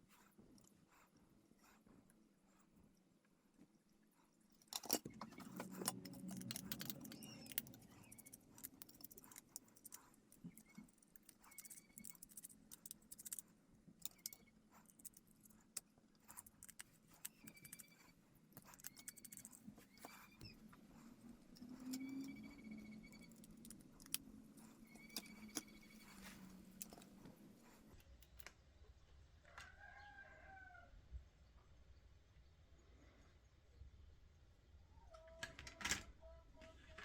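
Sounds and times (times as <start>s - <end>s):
plastic parts clicking and rattling: 4.5s - 20.5s, 21.4s - 28.6s
short squeaks: 17.2s - 27.8s.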